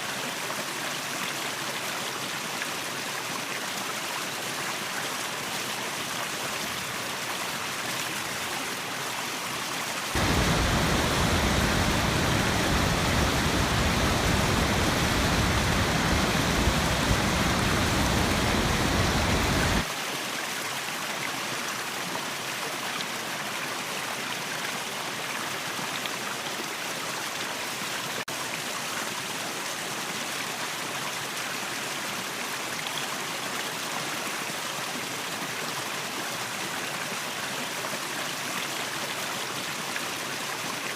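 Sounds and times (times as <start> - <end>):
waterfall rushing: 10.1 - 19.9.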